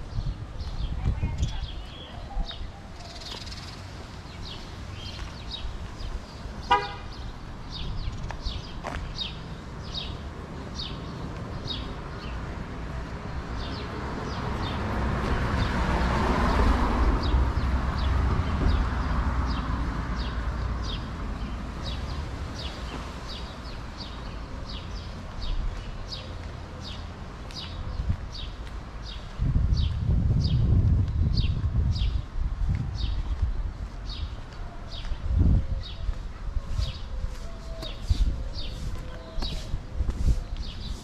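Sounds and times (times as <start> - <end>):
vehicle passing: 11.7 - 23.4.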